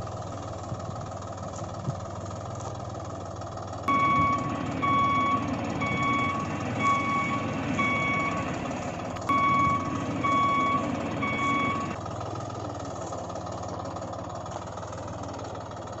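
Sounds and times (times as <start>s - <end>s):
toy vehicle reversing beeper: 3.9s - 12.0s.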